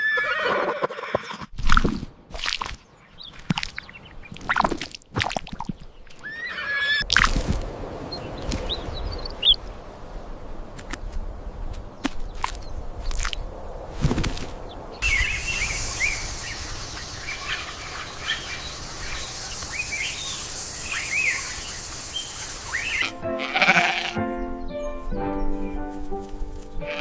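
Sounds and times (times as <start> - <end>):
small birds chirping: 2.6 - 4.8, 5.5 - 7.3, 8.0 - 23.1
steady hiss: 12.8 - 23.2
animal bleating: 22.8 - 24.2
music: 23.0 - 27.0.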